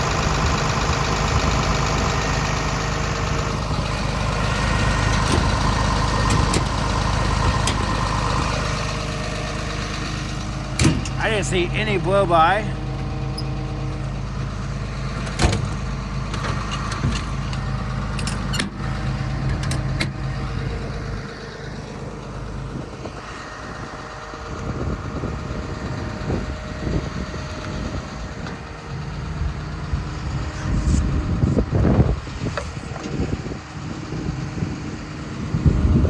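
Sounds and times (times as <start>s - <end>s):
uneven rumbling: 0.0s - 21.1s
diesel engine idling: 0.0s - 36.0s.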